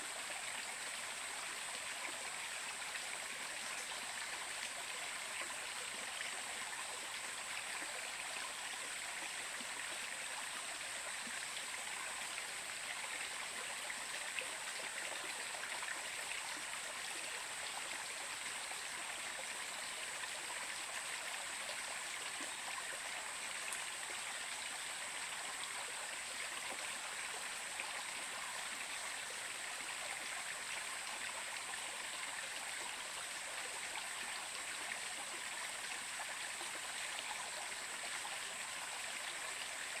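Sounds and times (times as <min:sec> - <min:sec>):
water flowing in a stream: 0:00.0 - 0:40.0.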